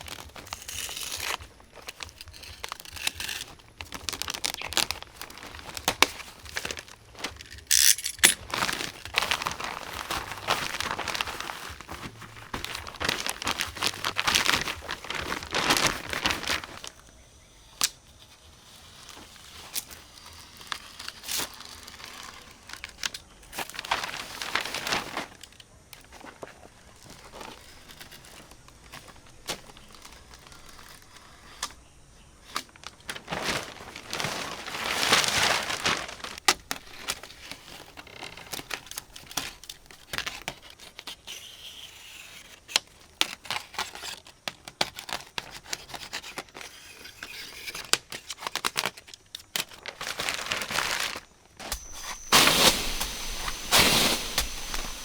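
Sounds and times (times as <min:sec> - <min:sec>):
dry material crinkling and rustling: 0:00.0 - 0:41.3, 0:42.5 - 0:55.0.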